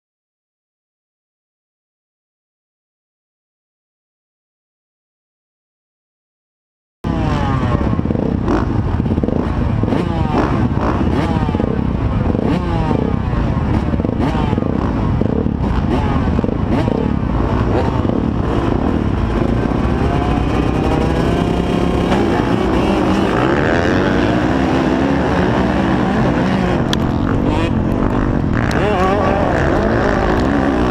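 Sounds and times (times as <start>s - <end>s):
motocross bikes revving: 7.1s - 30.9s.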